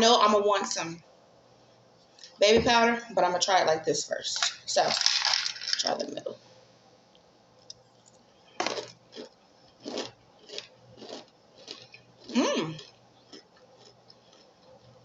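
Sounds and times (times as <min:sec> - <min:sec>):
crunchy food being chewed: 0:07.7 - 0:15.0.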